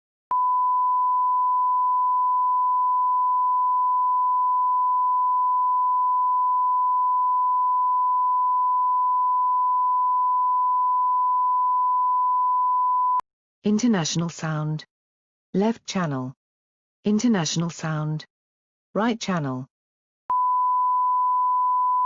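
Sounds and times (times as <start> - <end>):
sine wave test tone: 0.3 - 13.2, 20.3 - 22.0.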